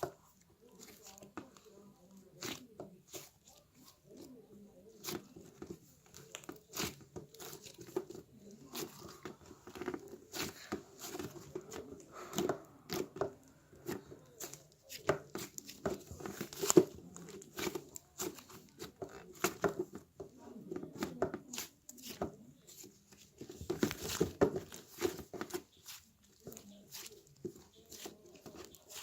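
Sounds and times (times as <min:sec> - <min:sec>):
slime squishing and popping: 0:04.9 - 0:19.9, 0:20.9 - 0:29.0.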